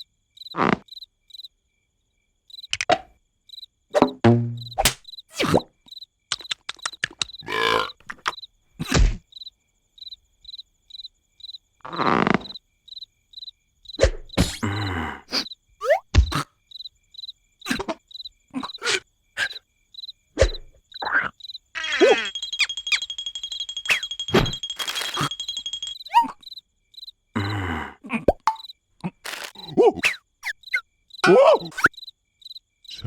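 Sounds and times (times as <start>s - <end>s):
high insect chirping: 0.0s - 2.8s, 3.4s - 27.7s, 28.3s - 33.0s
cricket-like chirping: 0.0s - 33.0s
cartoon voice squeaks and grunts: 18.6s - 19.6s, 21.0s - 22.3s, 29.0s - 32.0s.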